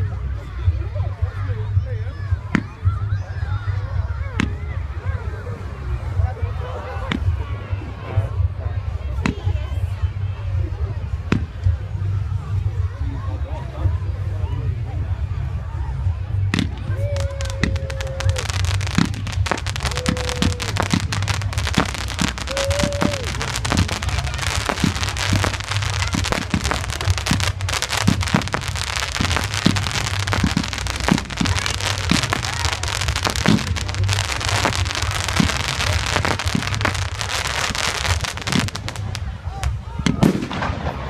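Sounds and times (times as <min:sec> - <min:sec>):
fireworks crackling: 0:16.5 - 0:41.0
fireworks bangs: 0:16.6 - 0:41.0.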